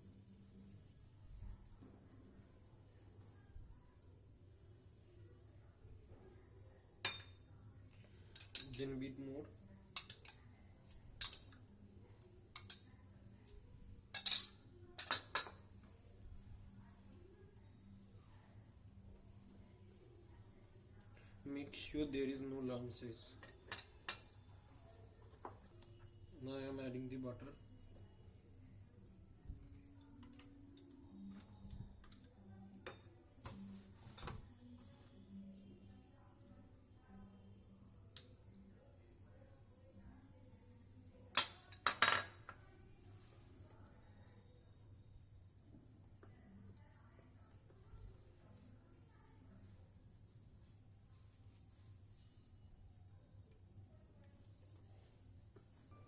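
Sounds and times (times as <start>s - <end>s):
utensil clinking against bowl: 7.0s - 7.4s, 8.3s - 8.9s, 9.9s - 10.4s, 11.2s - 11.6s, 14.1s - 15.9s, 23.3s - 24.5s.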